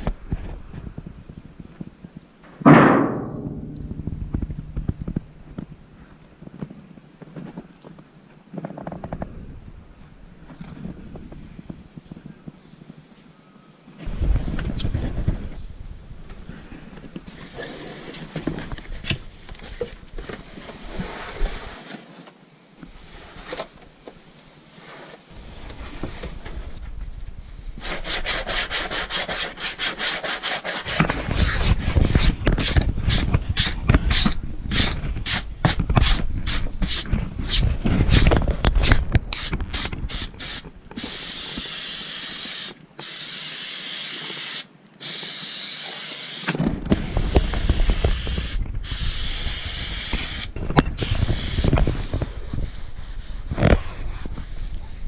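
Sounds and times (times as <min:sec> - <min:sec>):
aerosol spray hiss: 0:39.4 - 0:51.8.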